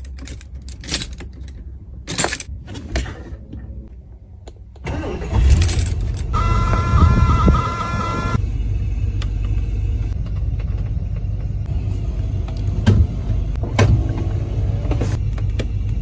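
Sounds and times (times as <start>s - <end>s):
keys jangling: 0.0s - 2.5s
car engine starting and running: 0.0s - 16.0s
steady high whine: 6.4s - 12.6s.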